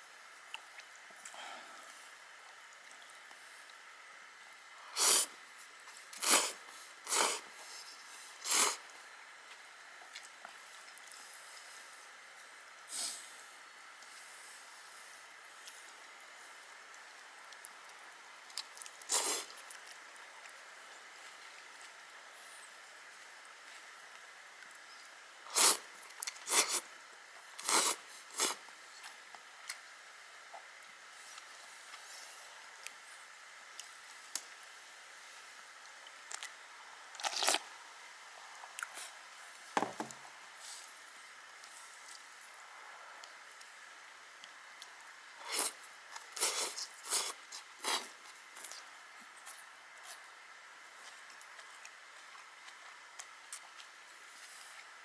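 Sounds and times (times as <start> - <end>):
loud noodle slurps: 5.0 - 5.3, 6.1 - 7.5, 8.4 - 8.9, 19.1 - 19.6, 25.5 - 26.9, 27.6 - 28.6, 45.4 - 45.8, 46.4 - 48.2.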